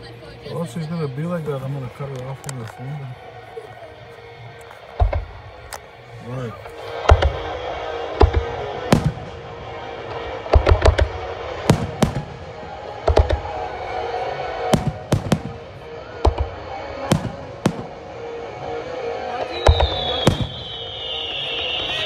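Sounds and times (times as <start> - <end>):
high whistle falling in pitch: 19.3 - 22.0.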